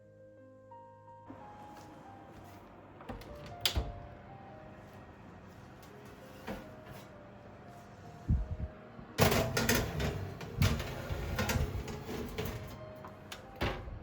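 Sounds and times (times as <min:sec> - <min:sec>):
knocks and clatter: 0:09.2 - 0:13.0.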